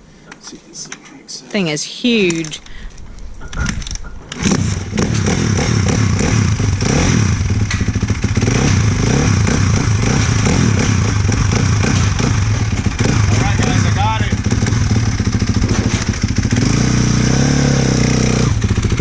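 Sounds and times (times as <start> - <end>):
dirt bike engine starting: 4.3 - 19.0.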